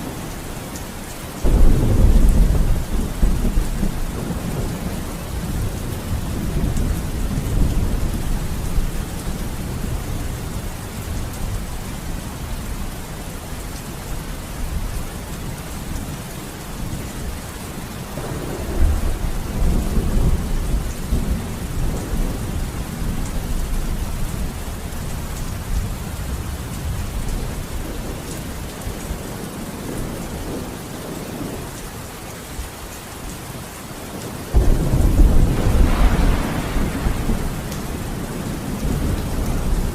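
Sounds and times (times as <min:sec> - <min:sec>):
steady rain falling: 0:00.0 - 0:39.9
thunder rumbling: 0:01.4 - 0:12.5, 0:18.1 - 0:28.7, 0:34.5 - 0:39.9.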